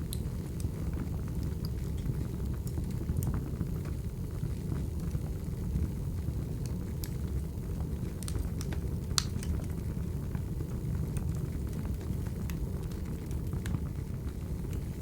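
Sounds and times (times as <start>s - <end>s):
fire crackles and pops: 0.0s - 15.0s
wood fire roaring: 0.0s - 15.0s.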